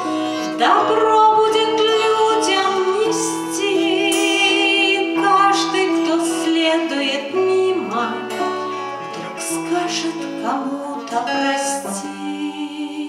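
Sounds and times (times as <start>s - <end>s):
guitar: 0.0s - 13.0s
woman singing: 0.0s - 13.0s.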